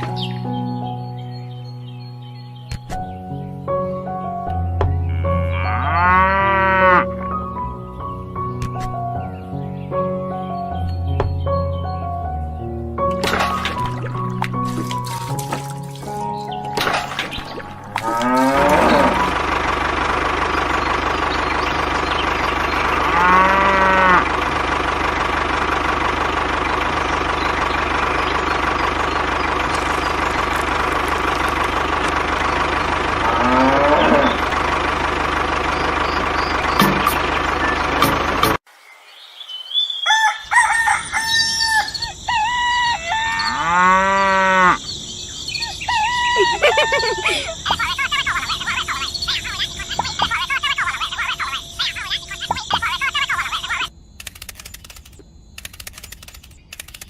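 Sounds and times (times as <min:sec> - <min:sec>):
cattle mooing: 0:05.0 - 0:07.3, 0:17.9 - 0:19.4, 0:22.9 - 0:24.4, 0:33.2 - 0:34.5, 0:43.0 - 0:44.8
chicken and rooster calls: 0:39.9 - 0:44.9, 0:45.6 - 0:47.7.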